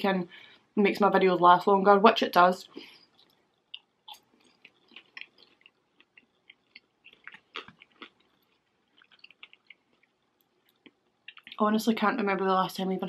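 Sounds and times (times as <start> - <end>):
person chewing food: 2.9 - 11.6.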